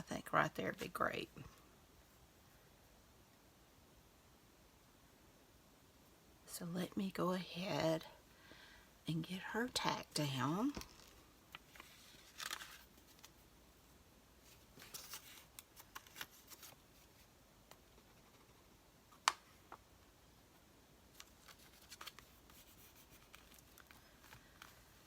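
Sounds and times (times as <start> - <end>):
paper rustling and scraping: 11.7 - 13.4, 14.4 - 17.3, 21.1 - 25.0.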